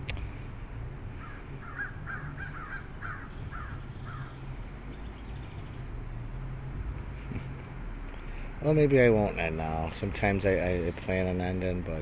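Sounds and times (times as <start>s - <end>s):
bird calling: 1.2s - 5.9s.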